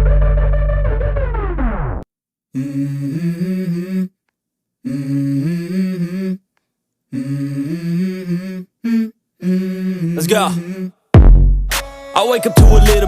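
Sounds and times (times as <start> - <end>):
person humming a melody: 2.6 - 4.2, 4.8 - 6.4, 7.1 - 11.0, 11.9 - 13.0.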